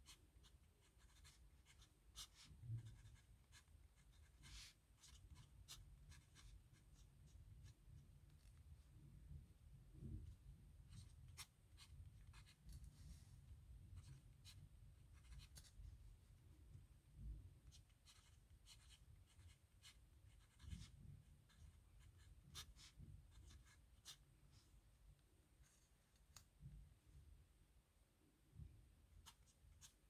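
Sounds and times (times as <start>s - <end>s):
pen scratching on paper: 0.1s - 6.6s, 17.6s - 24.2s.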